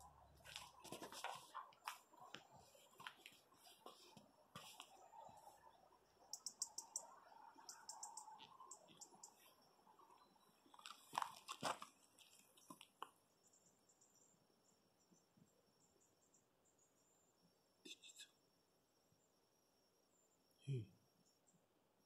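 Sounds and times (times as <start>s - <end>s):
small bird chirping: 4.6s - 11.1s.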